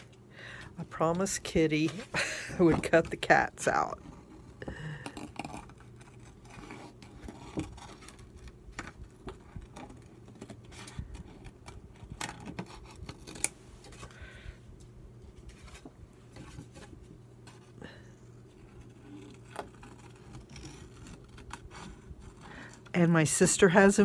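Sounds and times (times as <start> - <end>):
scissors cutting paper: 5.0 - 13.5, 18.6 - 22.8.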